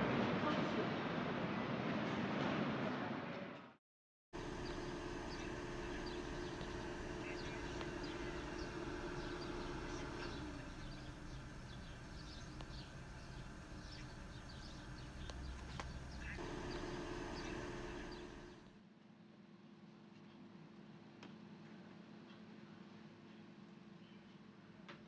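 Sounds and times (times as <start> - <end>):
small birds chirping: 4.4 - 18.6
steady mechanical hum: 4.4 - 25.0.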